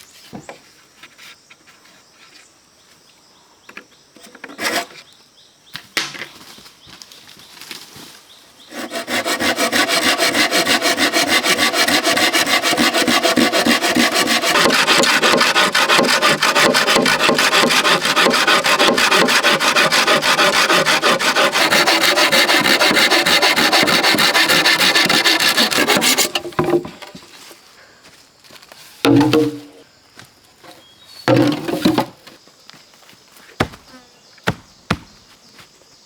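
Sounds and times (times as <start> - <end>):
hand saw cutting: 8.7 - 27.2.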